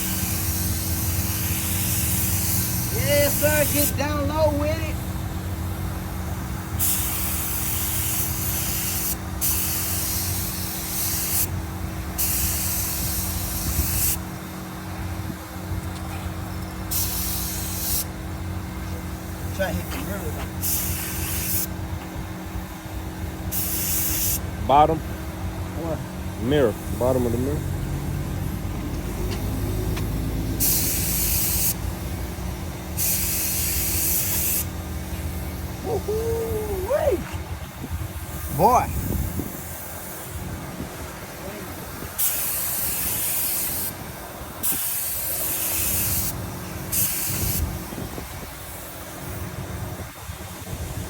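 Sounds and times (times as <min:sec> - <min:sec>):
paint spray gun hissing: 0:00.0 - 0:05.1, 0:06.3 - 0:14.3, 0:16.8 - 0:18.2, 0:19.2 - 0:21.8, 0:23.5 - 0:24.5, 0:29.0 - 0:35.6, 0:38.1 - 0:49.8
steady low hum: 0:00.0 - 0:45.4.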